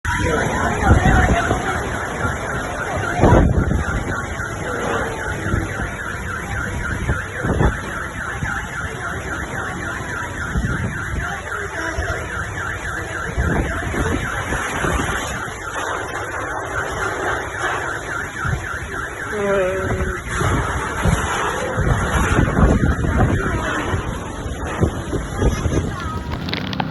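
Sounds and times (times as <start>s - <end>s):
wind buffeting microphone: 0.0s - 4.5s, 19.9s - 26.9s
car alarm chirping: 0.1s - 21.0s, 25.8s - 26.9s
heavy rain hissing: 25.8s - 26.9s.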